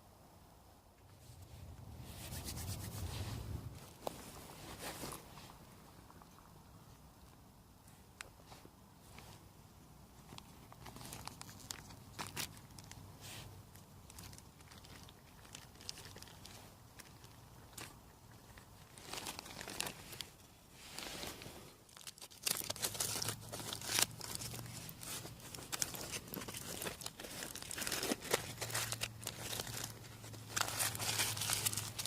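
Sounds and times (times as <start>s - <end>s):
packaging crinkling and tearing: 10.3s - 13.0s, 13.7s - 20.4s, 21.0s - 32.0s.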